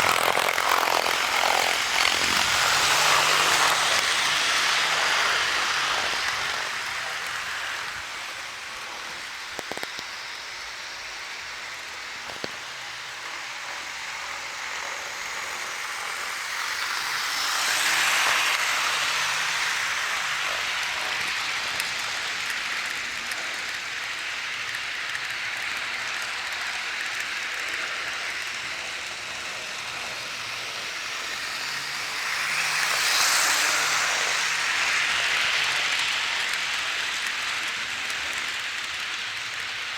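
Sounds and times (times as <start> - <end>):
model train rolling hiss: 0.0 - 39.9.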